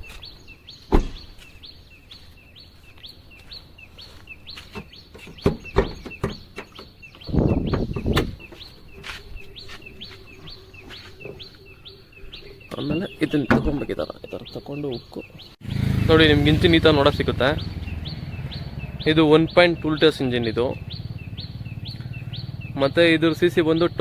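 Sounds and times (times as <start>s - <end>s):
car bonnet knocks and clunks: 5.3s - 6.8s
small bird chirping: 14.0s - 24.0s.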